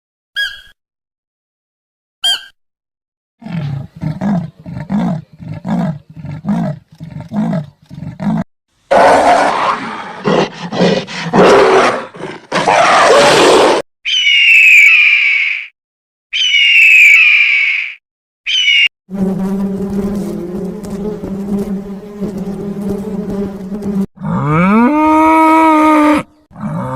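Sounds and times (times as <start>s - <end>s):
large animal roaring: 3.4s - 13.8s, 24.2s - 26.9s
high squawking call: 14.1s - 15.7s, 16.3s - 18.9s.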